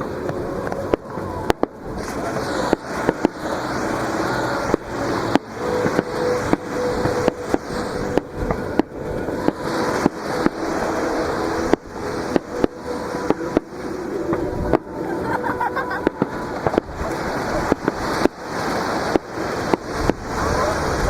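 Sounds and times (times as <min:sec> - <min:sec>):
faint music: 0:00.0 - 0:21.0
surf breaking: 0:00.0 - 0:21.0
fireworks bangs: 0:00.2 - 0:15.0.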